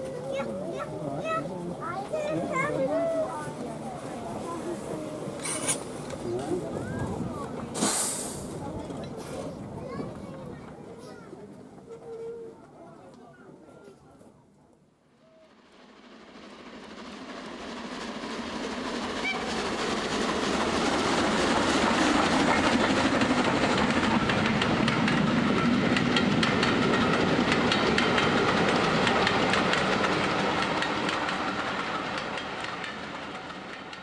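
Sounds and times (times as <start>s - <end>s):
miniature steam train running: 0.0s - 14.3s, 15.0s - 34.0s
wheels clicking over rail joints: 5.2s - 7.8s, 18.7s - 34.0s.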